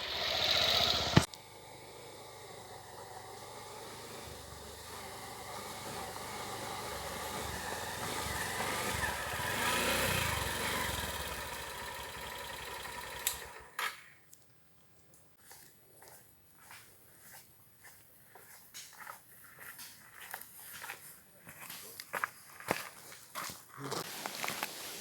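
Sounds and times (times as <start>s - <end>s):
vehicle engine passing: 0.0s - 13.7s.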